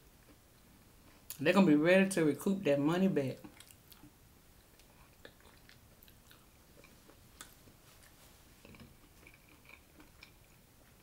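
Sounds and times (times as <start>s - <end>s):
person chewing soup: 3.4s - 11.0s.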